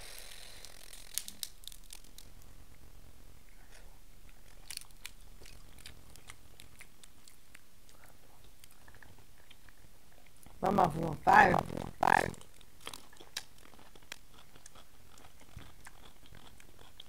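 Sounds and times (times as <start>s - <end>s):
crab shell crackling: 0.2s - 2.9s, 3.6s - 17.0s
close chewing and mouth clicks: 3.4s - 17.0s.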